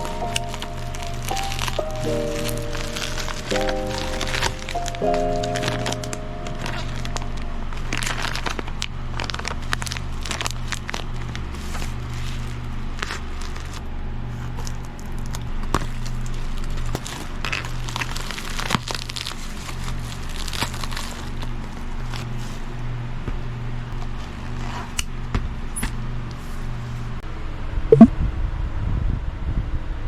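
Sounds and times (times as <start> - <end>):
packaging crinkling: 0.0 - 13.8, 14.5 - 22.3.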